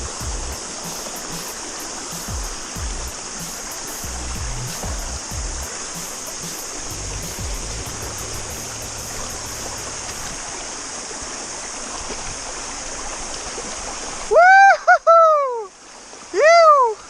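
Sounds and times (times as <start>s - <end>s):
low rumbles: 0.0s - 0.6s, 2.5s - 3.2s, 4.1s - 5.7s, 6.8s - 10.5s
high-pitched cicada chorus: 0.0s - 11.4s
stream running over rocks: 0.0s - 17.0s.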